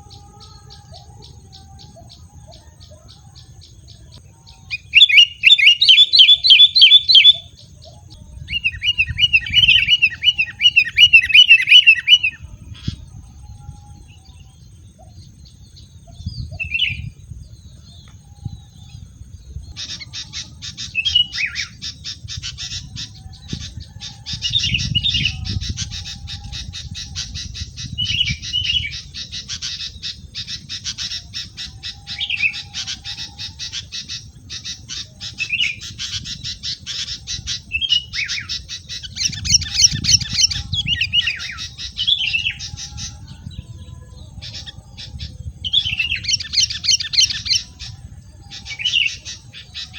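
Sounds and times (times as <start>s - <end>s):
birds squawking: 8.5s - 13.1s, 19.6s - 49.9s
dry rattling bird chatter: 18.9s - 43.6s, 44.3s - 49.9s.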